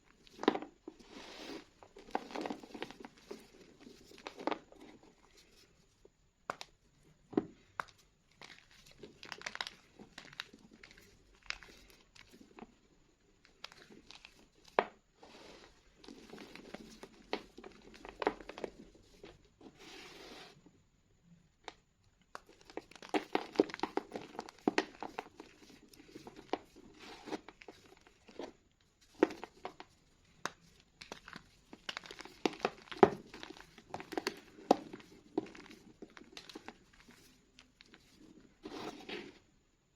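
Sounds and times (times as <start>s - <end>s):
soft powdery hiss: 0.0s - 20.9s
chalk crunching by hand: 1.0s - 2.9s.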